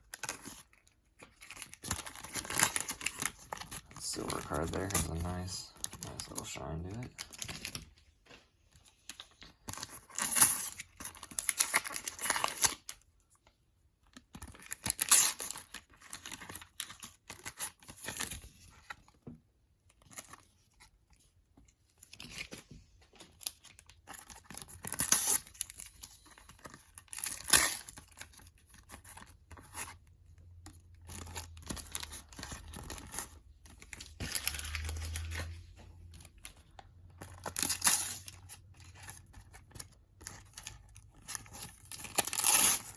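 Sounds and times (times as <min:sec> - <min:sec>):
packet wrappers tearing and crinkling: 0:00.0 - 0:07.8, 0:09.2 - 0:13.0, 0:14.4 - 0:18.3, 0:23.4 - 0:29.9, 0:31.0 - 0:35.6, 0:37.2 - 0:42.9.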